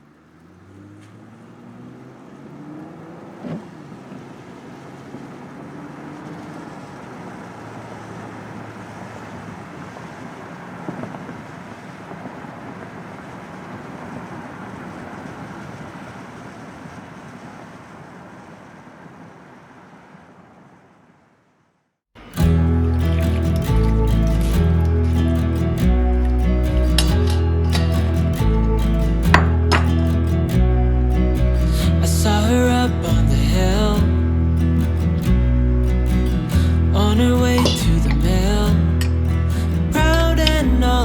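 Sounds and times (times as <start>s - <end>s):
steady rushing noise: 22.2s - 33.3s.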